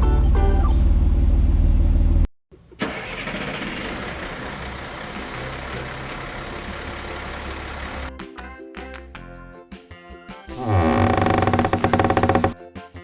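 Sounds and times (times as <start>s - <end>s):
music: 0.0s - 1.0s, 2.5s - 2.8s, 5.1s - 13.0s
vehicle engine running: 0.0s - 8.1s.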